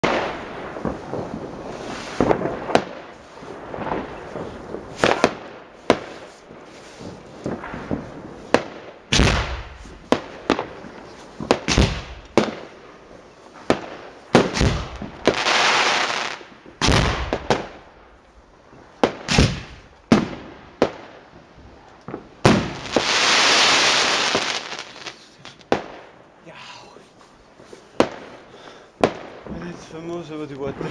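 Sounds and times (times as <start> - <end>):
fireworks banging: 0.0 - 26.2, 27.2 - 30.9
firework hissing rushes: 1.6 - 3.6, 22.5 - 25.6.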